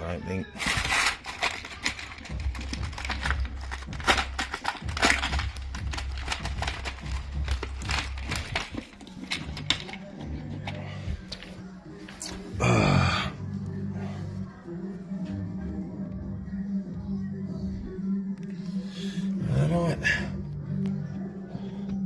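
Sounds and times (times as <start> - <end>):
metal nails rattling and clicking: 0.6 - 10.8.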